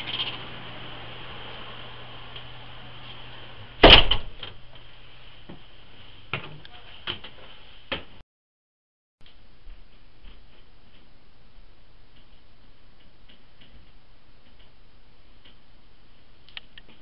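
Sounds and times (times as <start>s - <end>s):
door slamming shut: 3.8s - 4.6s.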